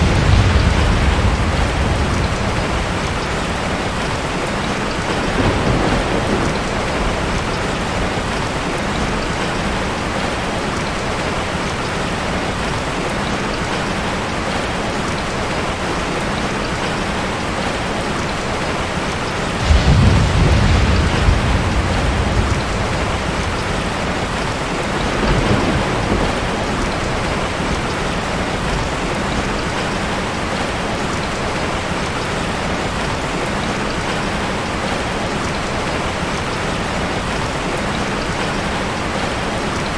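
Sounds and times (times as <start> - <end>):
wave breaking with low rumble: 0.0 - 4.5, 19.6 - 28.1
ocean surf washing: 0.0 - 10.8, 16.1 - 32.2.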